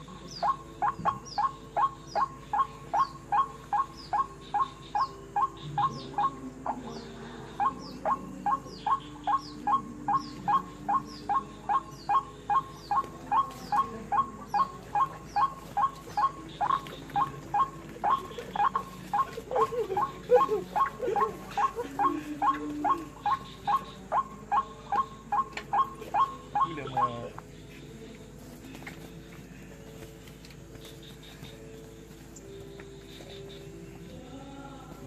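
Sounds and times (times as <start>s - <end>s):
waterhen harsh calls: 14.2s - 27.3s.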